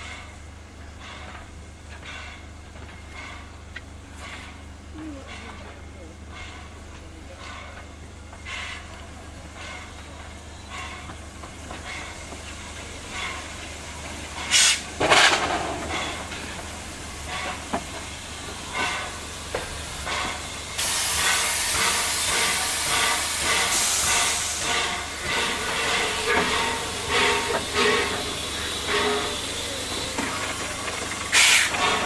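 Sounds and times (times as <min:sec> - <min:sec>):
steam hissing: 0:08.4 - 0:32.0.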